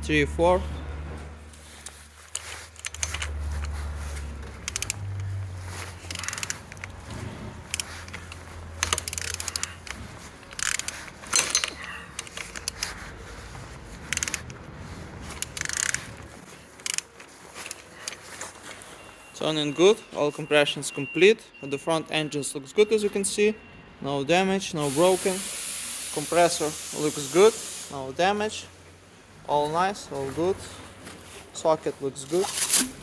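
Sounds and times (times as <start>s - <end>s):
wrench scraping: 1.6s - 14.6s, 15.2s - 18.4s, 32.2s - 33.0s
metallic clicks: 1.8s - 3.8s, 4.5s - 5.4s, 6.0s - 13.0s, 14.0s - 14.6s, 15.3s - 18.3s.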